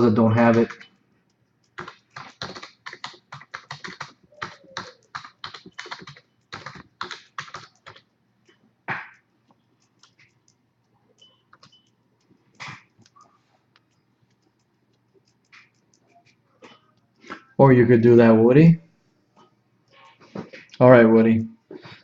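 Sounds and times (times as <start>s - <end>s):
typing on computer keyboard: 0.0s - 8.6s, 9.5s - 17.2s.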